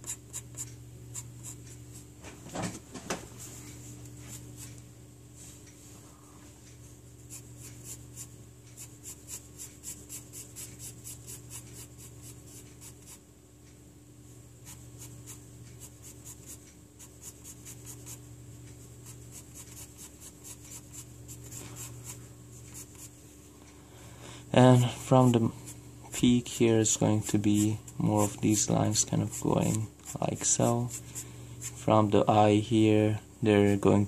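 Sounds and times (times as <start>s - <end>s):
pencil scratching on paper: 0.0s - 2.0s, 7.3s - 13.2s, 14.6s - 18.3s, 19.0s - 23.2s, 26.6s - 31.9s
faint low hum: 0.0s - 34.0s.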